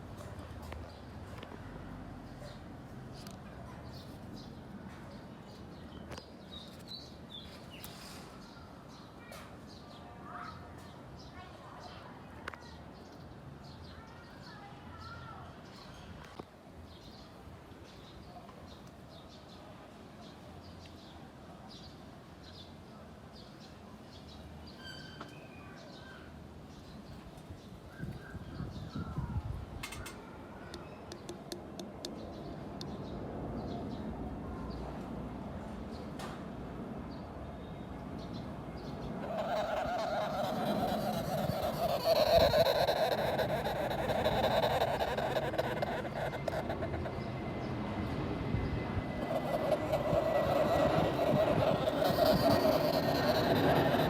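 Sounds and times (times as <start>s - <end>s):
birds chirping: 37.1s - 54.0s
low outdoor rumble: 38.4s - 54.0s.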